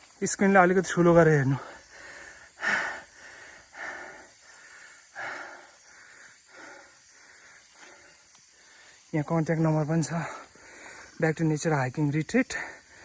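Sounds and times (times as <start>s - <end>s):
person breathing heavily: 1.6s - 9.1s, 10.2s - 11.2s, 12.6s - 13.0s.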